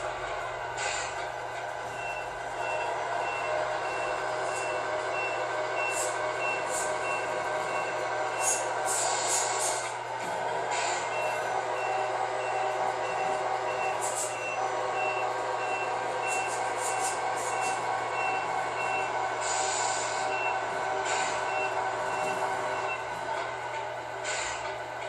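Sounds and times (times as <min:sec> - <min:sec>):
simulated diesel engine: 0:00.0 - 0:25.0
reversing beeper: 0:01.9 - 0:08.6, 0:10.9 - 0:23.1.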